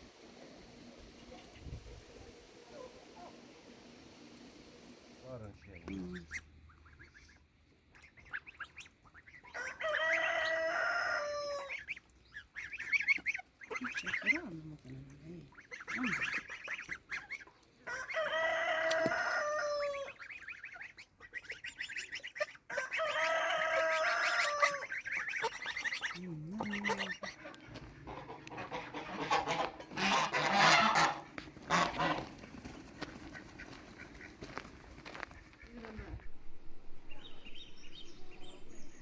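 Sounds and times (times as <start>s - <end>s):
rough fowl calls: 5.5s - 14.6s, 15.4s - 36.2s
rooster crowing: 9.5s - 11.8s, 17.8s - 20.1s, 22.7s - 24.9s.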